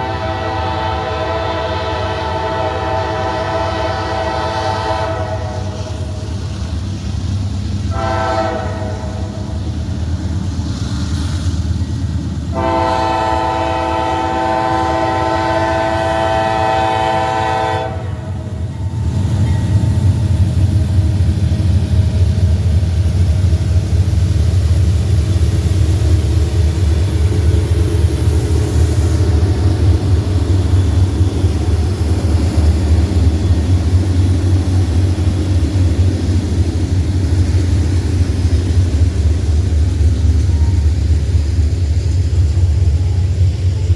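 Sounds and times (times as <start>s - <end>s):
locomotive air horn blast: 0.0s - 6.1s, 7.9s - 9.5s, 12.5s - 18.4s
passing train rumble: 0.0s - 43.9s.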